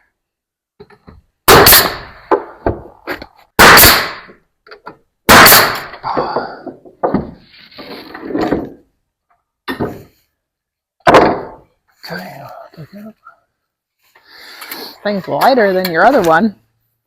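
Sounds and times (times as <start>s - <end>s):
nail gun firing into wood: 1.5s - 2.6s, 3.6s - 4.3s, 5.3s - 6.0s
wood knocks: 2.3s - 3.2s, 6.0s - 7.5s, 9.7s - 10.2s.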